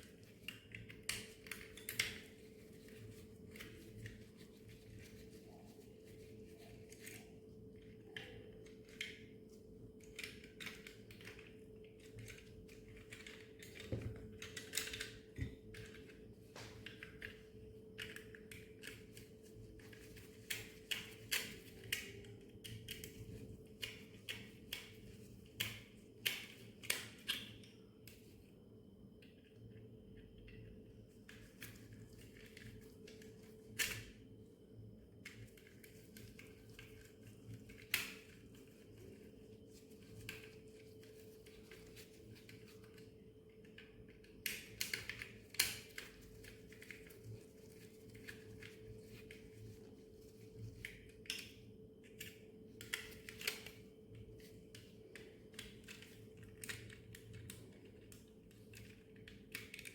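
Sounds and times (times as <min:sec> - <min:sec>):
faint steady hum: 0:00.0 - 0:59.9
plastic toy parts clicking: 0:55.2 - 0:59.9.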